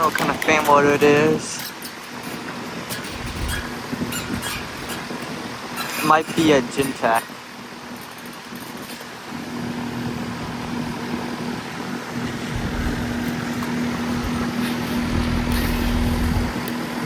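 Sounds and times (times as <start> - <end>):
condenser fan rushing: 0.0 - 17.0
heat pump compressor hum: 0.0 - 17.0
deep low rumble: 12.5 - 13.3, 13.9 - 16.6.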